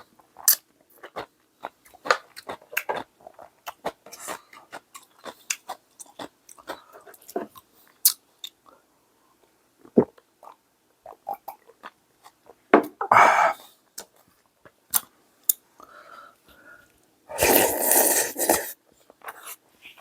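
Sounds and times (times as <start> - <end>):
person chewing food: 0.0 - 8.7, 9.8 - 12.6.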